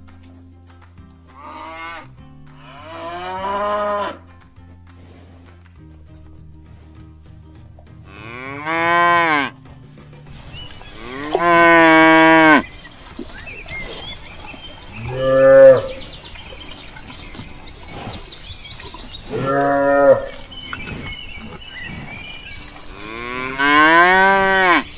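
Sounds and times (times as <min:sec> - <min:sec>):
cows mooing: 0:01.4 - 0:04.2, 0:08.1 - 0:09.6, 0:10.8 - 0:12.8, 0:14.8 - 0:16.3, 0:17.2 - 0:24.9.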